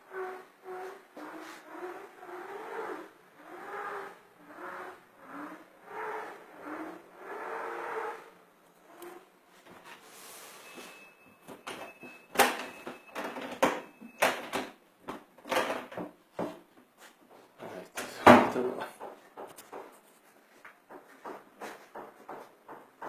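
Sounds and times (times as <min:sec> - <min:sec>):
faint steady high tone: 0:10.5 - 0:14.6
cabinet doors and drawers clattering: 0:11.5 - 0:14.8, 0:15.4 - 0:16.6, 0:18.0 - 0:19.9.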